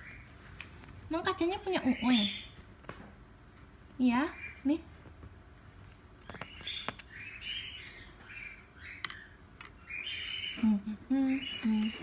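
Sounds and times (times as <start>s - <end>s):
cockatiel chirping and chattering: 6.2s - 10.6s.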